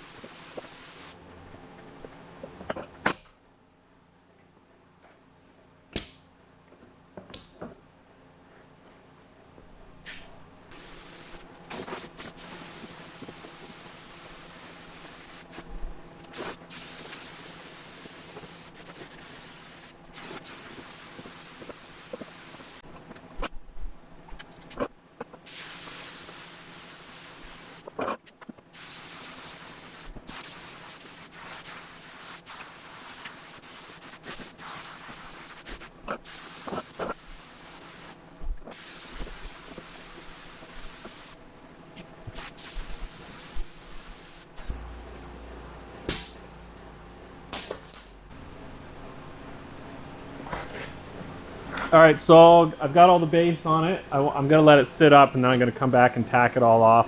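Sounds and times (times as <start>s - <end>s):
short hissing bursts: 0.0s - 1.2s, 10.7s - 22.8s, 25.5s - 27.9s, 28.8s - 41.4s, 42.3s - 44.8s, 46.1s - 46.6s.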